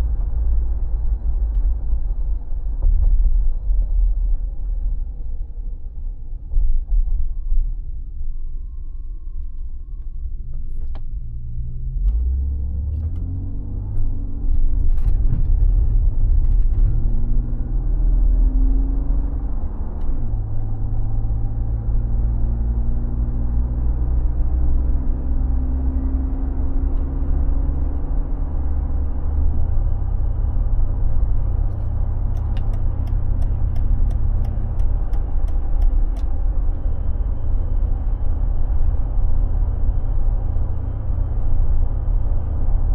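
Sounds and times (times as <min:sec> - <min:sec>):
car engine running: 0:27.8 - 0:42.9.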